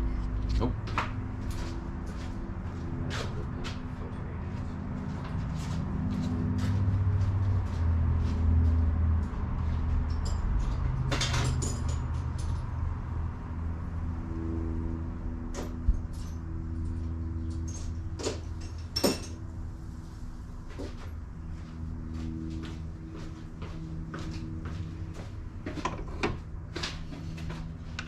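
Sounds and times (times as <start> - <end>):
steady low hum: 0.0 - 28.0
tools clicking and knocking: 25.8 - 26.4.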